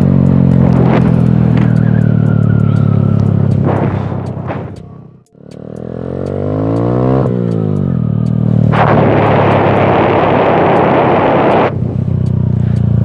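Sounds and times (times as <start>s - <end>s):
motorcycle engine revving: 0.0s - 13.0s
loud rough rushing noise: 3.6s - 4.9s, 8.6s - 11.8s.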